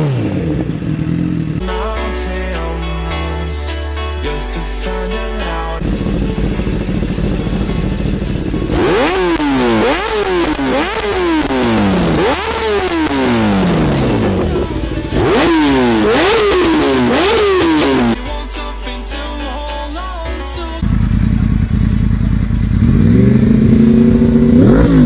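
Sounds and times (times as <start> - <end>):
motorcycle engine revving: 0.0 - 1.7, 5.8 - 18.2, 20.8 - 25.0.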